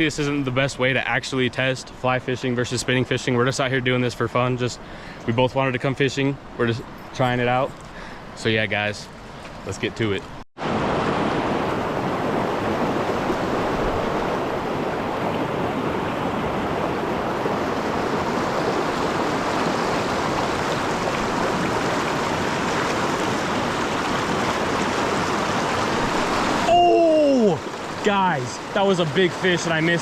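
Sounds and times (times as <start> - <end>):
creek water rushing: 6.4 - 30.0.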